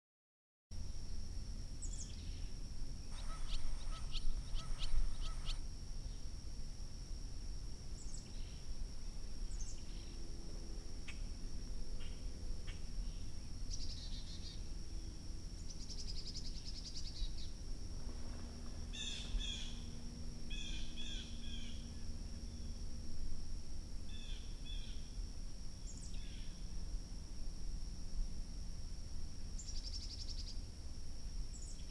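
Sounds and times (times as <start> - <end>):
steady high-pitched whine: 0.8 - 31.9
birds calling: 3.1 - 5.6.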